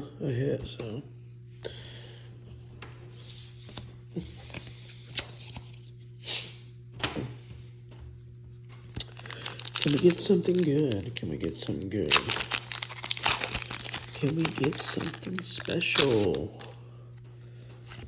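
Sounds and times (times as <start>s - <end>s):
steady low hum: 0.0s - 18.0s
rustling of cards and foil packs: 8.9s - 16.8s.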